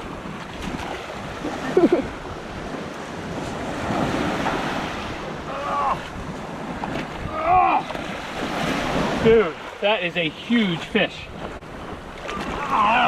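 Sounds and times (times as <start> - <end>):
wind buffeting microphone: 0.0 - 9.8
waves washing in: 0.0 - 13.0.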